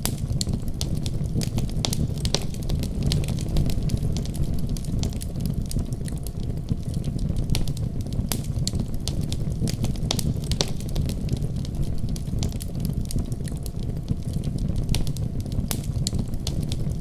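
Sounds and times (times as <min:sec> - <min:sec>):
low rumble of flame: 0:00.0 - 0:17.0
sharp pops and snaps: 0:00.0 - 0:17.0
wood fire crackling: 0:00.0 - 0:17.0.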